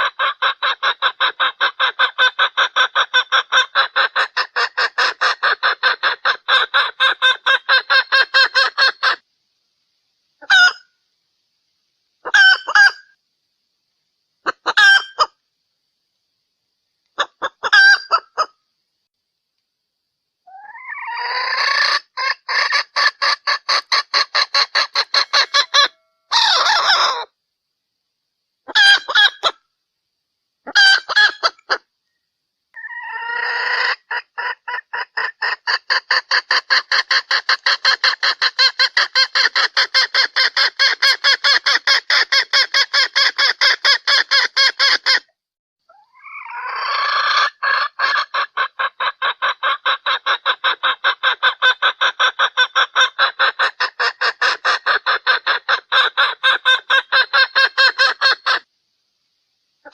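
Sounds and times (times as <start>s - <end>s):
hen clucking: 0.0s - 9.2s, 10.4s - 10.9s, 12.2s - 13.1s, 14.4s - 15.4s, 17.2s - 18.5s, 20.5s - 27.3s, 28.7s - 29.6s, 30.6s - 31.9s, 32.8s - 45.2s, 45.9s - 58.7s.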